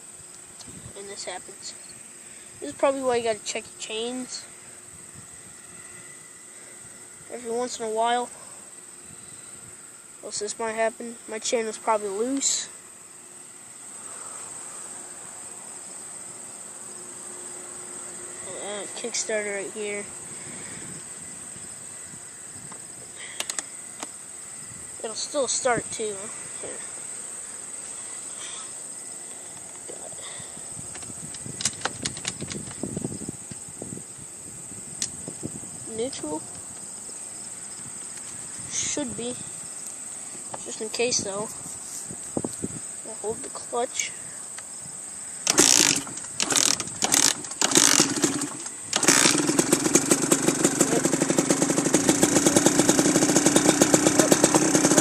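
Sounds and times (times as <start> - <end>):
crickets droning: 0.0 - 55.0
sharp clicks and dull knocks: 23.4 - 24.1, 30.9 - 32.8
dirt bike kick-starter kicks: 30.9 - 32.9
dirt bike engine running: 45.4 - 55.0.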